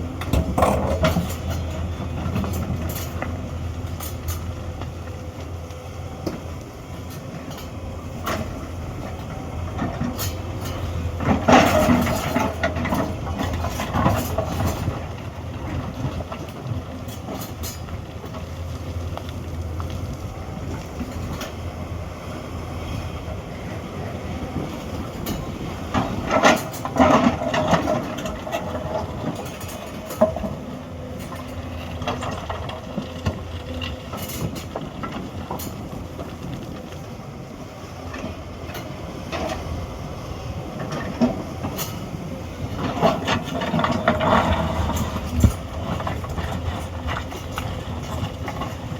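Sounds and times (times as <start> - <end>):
excavator diesel engine: 0.0 - 48.9
metallic clanking and scraping: 0.2 - 4.8, 9.2 - 18.4, 24.8 - 36.7, 40.8 - 48.9.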